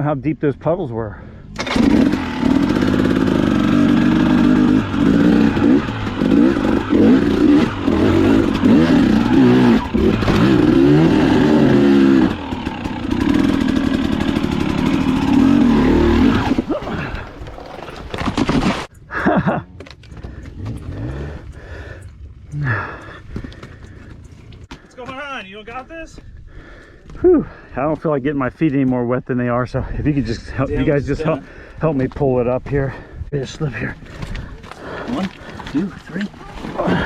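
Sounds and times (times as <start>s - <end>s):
dirt bike engine revving: 1.6s - 18.9s.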